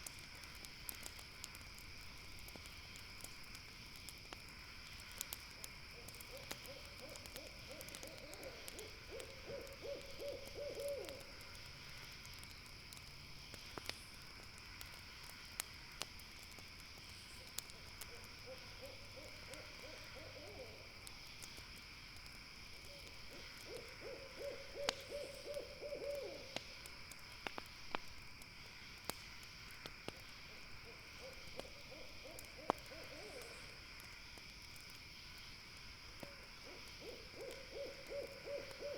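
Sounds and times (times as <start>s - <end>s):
campfire popping and crackling: 0.0s - 38.8s
night insects droning: 0.0s - 38.9s
owl hooting: 6.3s - 11.3s, 18.1s - 20.8s, 23.7s - 26.6s, 36.6s - 38.9s.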